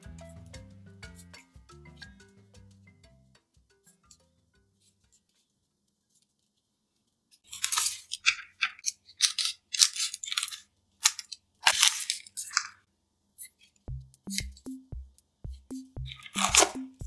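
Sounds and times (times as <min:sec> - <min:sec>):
plastic wrappers crinkling: 0:07.4 - 0:12.9.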